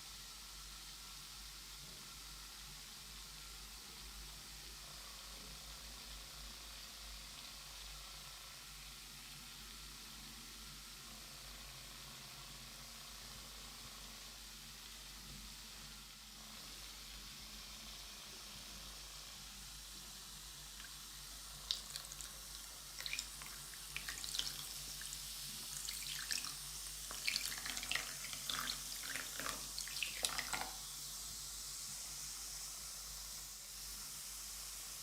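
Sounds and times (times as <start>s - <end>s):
steady hiss: 0.0s - 35.0s
water splashing in a basin: 21.6s - 24.8s, 25.7s - 30.8s.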